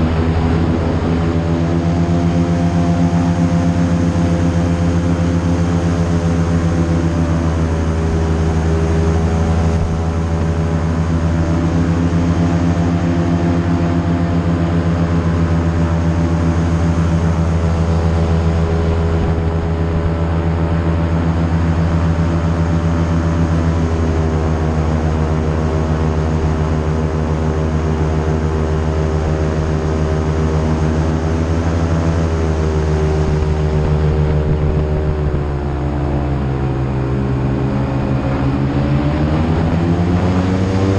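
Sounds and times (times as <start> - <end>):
airboat engine and propeller drone: 0.0 - 40.9.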